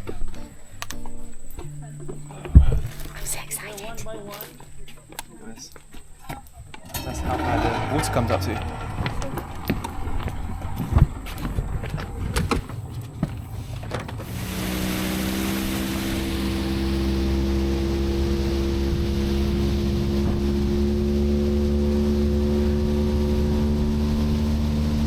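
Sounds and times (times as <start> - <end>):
knocks and clatters: 6.2 - 14.3
outboard motor running: 6.9 - 25.0
wind and water rushing: 7.0 - 12.8, 14.1 - 25.0.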